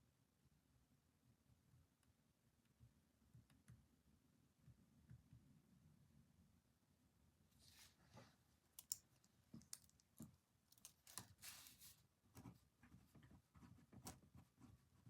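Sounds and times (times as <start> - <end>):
light desk clicks and taps: 8.8 - 11.3.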